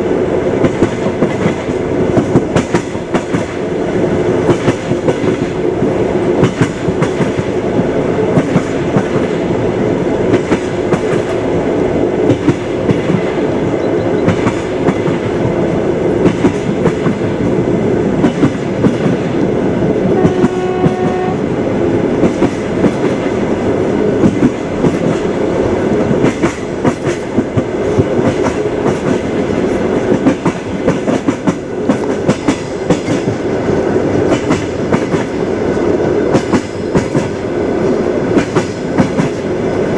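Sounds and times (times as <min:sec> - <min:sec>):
train wheels clattering: 0:00.6 - 0:09.6, 0:10.3 - 0:11.5, 0:12.2 - 0:13.5, 0:14.2 - 0:17.6, 0:18.2 - 0:21.3, 0:24.2 - 0:39.9
distant horn tone: 0:20.1 - 0:21.4.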